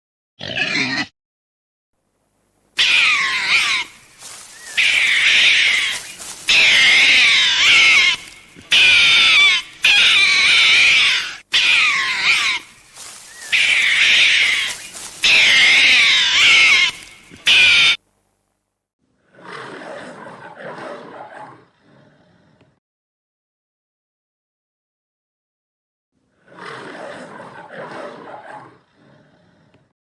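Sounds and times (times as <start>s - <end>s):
animal calling loudly: 2.8s - 18.0s.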